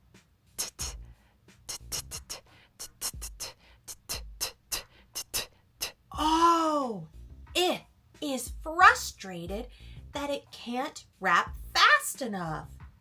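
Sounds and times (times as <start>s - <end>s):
hip-hop drum beat: 0.1s - 6.4s, 8.5s - 10.3s, 11.5s - 11.8s, 12.6s - 13.0s.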